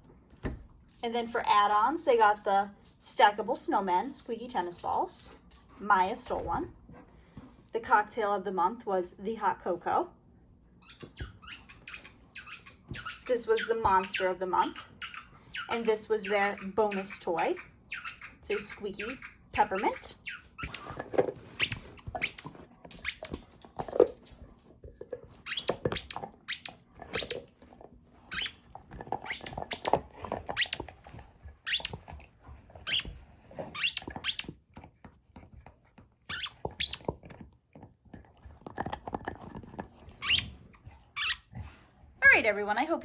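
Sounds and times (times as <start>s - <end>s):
squeaky toy squeaks: 10.8s - 20.9s, 21.6s - 23.4s, 25.4s - 27.5s, 28.3s - 28.6s, 29.2s - 29.9s, 30.5s - 30.8s, 31.6s - 32.0s, 32.9s - 33.1s, 33.7s - 34.5s, 36.3s - 37.3s, 40.2s - 41.7s
dog chewing clicks: 25.1s - 41.1s.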